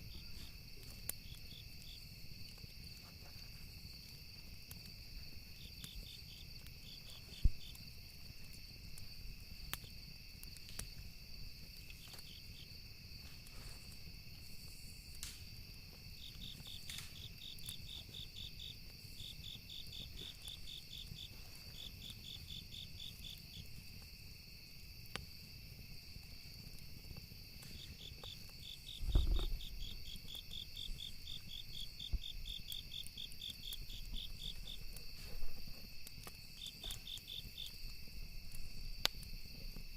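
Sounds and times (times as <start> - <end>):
burning wood crackling and popping: 0.0 - 39.9
crickets chirping: 0.0 - 39.9
high insect drone: 0.0 - 39.9
low thud: 29.0 - 29.7.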